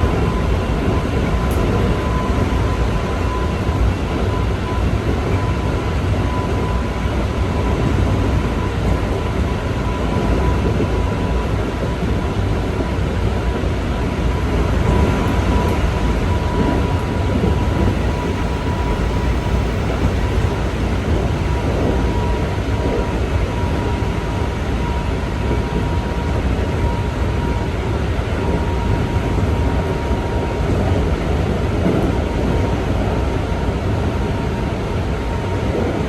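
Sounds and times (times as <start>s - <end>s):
train wheels rumbling on rail: 0.0s - 36.0s
thin high tone from running gear: 15.2s - 27.7s.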